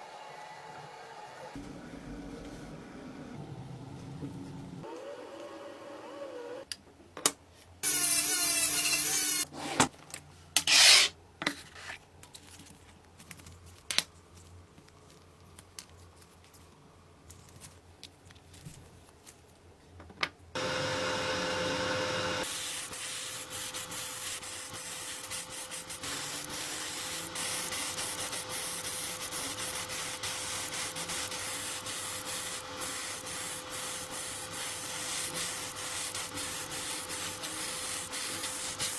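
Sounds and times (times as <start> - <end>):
sanding-like rubbing: 22.4 - 38.9.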